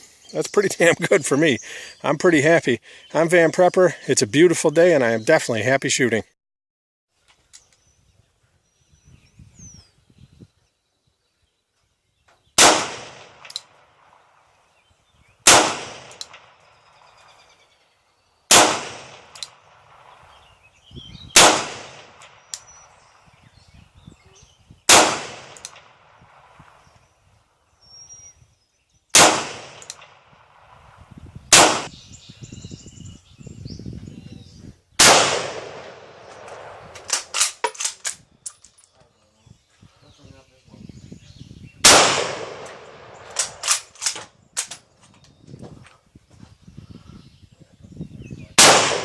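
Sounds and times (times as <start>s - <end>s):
gunshots with echo: 12.6s - 14.2s, 15.4s - 16.6s, 18.5s - 20.2s, 21.3s - 22.5s, 24.9s - 26.6s, 29.2s - 30.8s, 31.5s - 31.9s, 35.0s - 37.3s, 41.8s - 43.8s, 48.6s - 49.0s
gun handling clicks: 13.4s - 13.7s, 15.5s - 16.5s, 19.3s - 19.6s, 22.0s - 22.7s, 24.9s - 25.9s, 29.7s - 30.2s, 35.7s - 39.0s, 42.6s - 45.4s.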